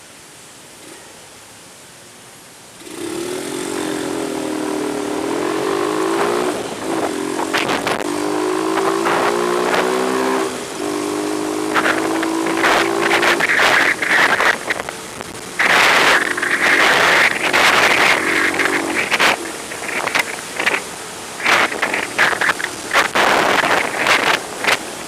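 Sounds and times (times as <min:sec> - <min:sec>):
vehicle engine running: 0:02.8 - 0:25.0
sharp clicks and knocks: 0:15.6 - 0:20.8.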